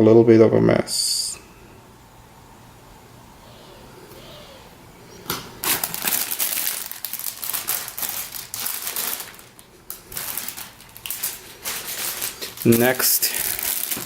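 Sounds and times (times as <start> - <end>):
plastic packaging crinkling: 5.4 - 14.0.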